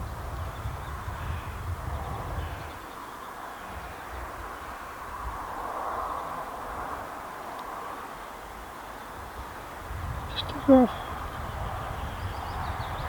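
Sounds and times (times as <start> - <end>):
noisy outdoor background: 0.0 - 13.0.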